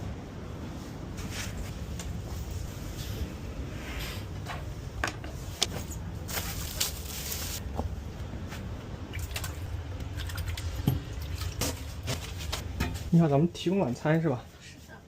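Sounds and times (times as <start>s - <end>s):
rustling: 5.4s - 7.6s.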